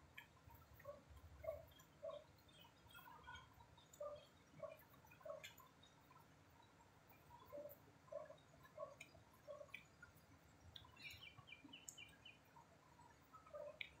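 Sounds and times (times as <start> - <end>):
faint bird calls: 0.6 - 5.7, 7.3 - 10.1, 10.7 - 14.0.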